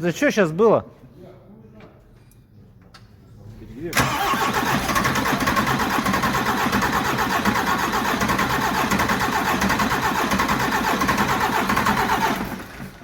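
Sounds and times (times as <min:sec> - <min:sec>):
diesel engine cranking on starter: 0:03.9 - 0:13.0.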